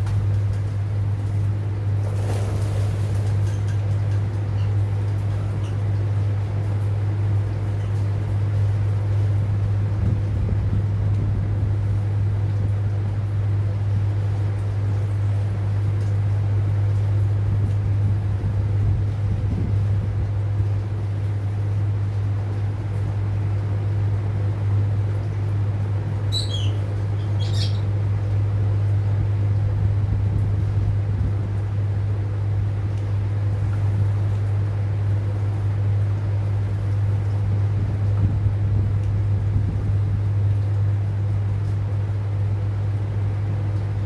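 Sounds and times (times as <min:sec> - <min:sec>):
steady low hum: 0:00.0 - 0:44.0
bird chirping: 0:26.3 - 0:27.9.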